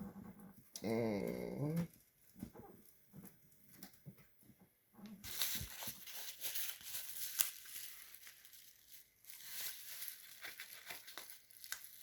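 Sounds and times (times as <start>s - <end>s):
small clicks and crackles: 5.0s - 12.0s
packaging crinkling: 5.2s - 12.0s.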